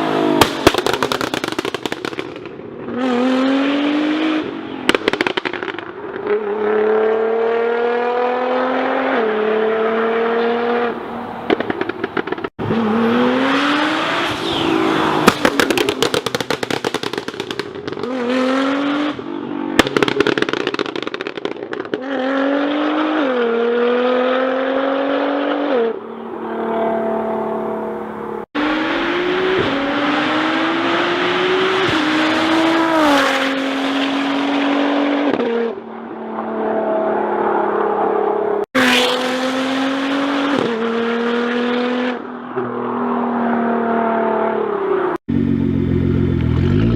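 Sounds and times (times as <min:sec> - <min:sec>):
exhaust crackling and popping: 0:00.3 - 0:02.7, 0:04.9 - 0:06.3, 0:11.5 - 0:12.6, 0:15.2 - 0:18.1, 0:19.7 - 0:22.0
car engine accelerating: 0:22.1 - 0:38.1.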